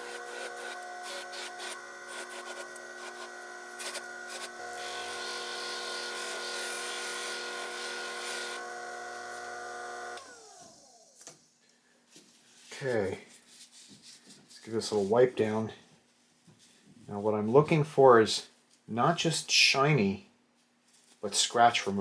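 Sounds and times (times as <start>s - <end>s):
metal scraping buffing wheel: 0.0s - 10.1s
bench grinder motor running: 0.0s - 11.1s.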